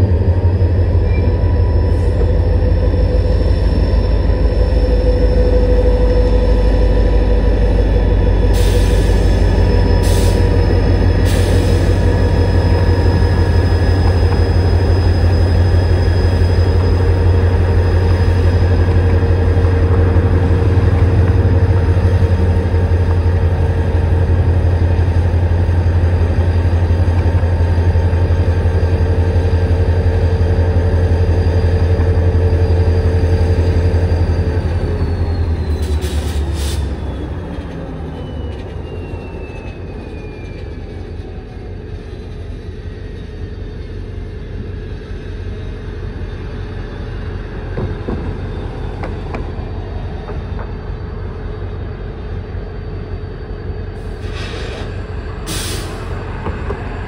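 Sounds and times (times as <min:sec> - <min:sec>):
freight train low rumble: 0:00.0 - 0:57.0.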